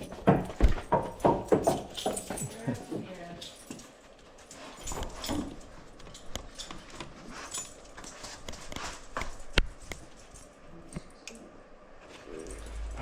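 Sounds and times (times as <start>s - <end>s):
light jingling: 0.0s - 9.5s.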